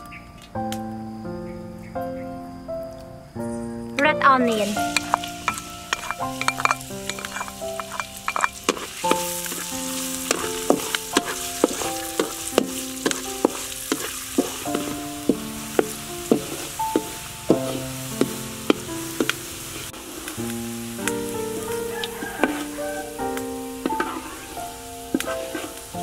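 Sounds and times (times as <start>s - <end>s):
background music: 0.0s - 26.0s
onion sizzling in hot oil: 4.4s - 26.0s
spatula scraping wok: 4.7s - 20.3s, 21.3s - 26.0s.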